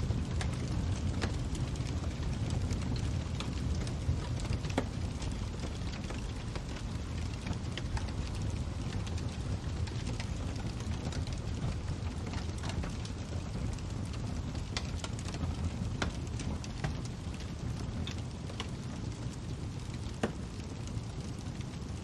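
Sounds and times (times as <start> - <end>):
fire crackling: 0.0 - 22.0.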